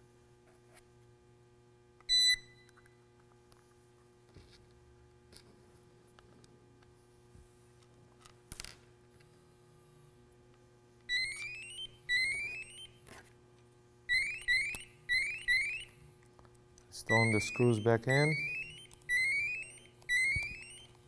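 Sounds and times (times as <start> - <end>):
gas detector alarm chirps: 2.1 - 2.8, 11.1 - 13.0, 14.1 - 16.1, 16.9 - 21.0.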